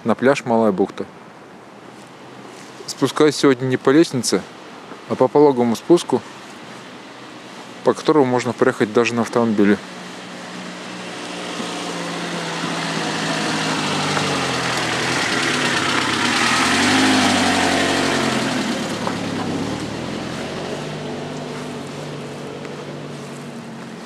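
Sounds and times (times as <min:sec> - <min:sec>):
motor engine passing by: 0:09.5 - 0:24.0.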